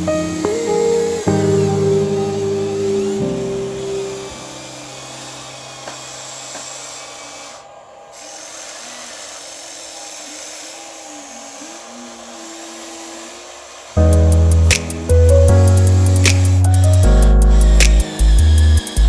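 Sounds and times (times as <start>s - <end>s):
hydraulic pump whine: 0.0s - 19.0s
whining electric motors: 0.0s - 19.0s
steady hiss: 13.9s - 19.0s.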